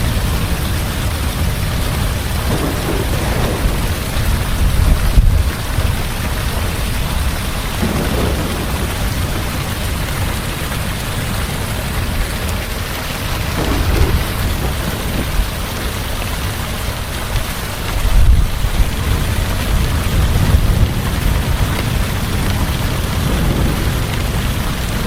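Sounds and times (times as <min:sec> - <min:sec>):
heavy rain falling: 0:00.0 - 0:25.0
low rumble of thunder: 0:00.0 - 0:25.0.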